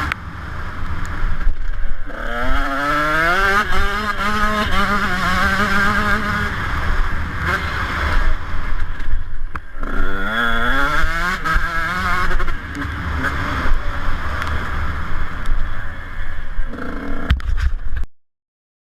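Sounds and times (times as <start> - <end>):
motocross bike engine revving: 1.9 - 8.9, 9.8 - 15.9, 16.7 - 17.3.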